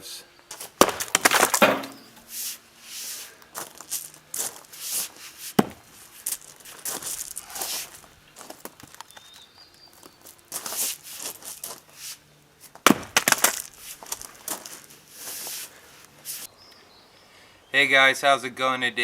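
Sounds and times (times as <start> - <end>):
scraping and handling of wood: 0.5 - 9.0
axe striking firewood: 0.8 - 2.3, 5.6 - 5.9, 12.8 - 13.6.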